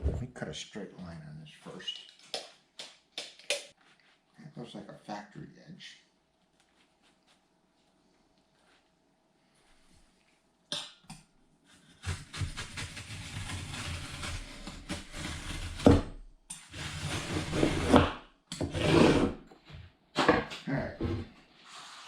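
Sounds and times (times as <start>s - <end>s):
scraping and rustling of duct sheet: 11.9s - 15.8s.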